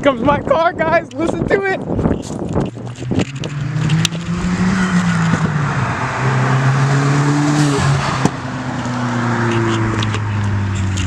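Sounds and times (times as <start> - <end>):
car exhaust drone approaching: 2.3 - 11.0.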